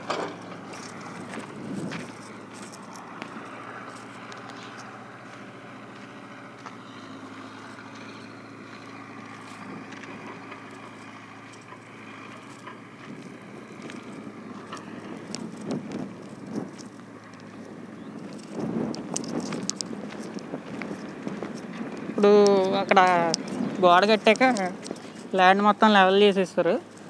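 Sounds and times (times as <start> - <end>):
low engine hum: 0.0 - 27.0
wind on microphone: 0.7 - 2.9, 13.0 - 26.1.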